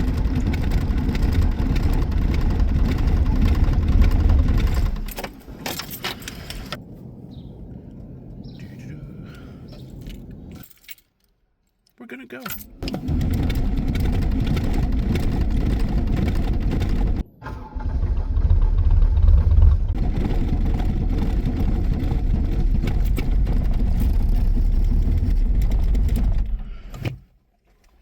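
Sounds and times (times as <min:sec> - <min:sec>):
diesel engine cranking: 0:00.0 - 0:06.8, 0:12.5 - 0:27.2.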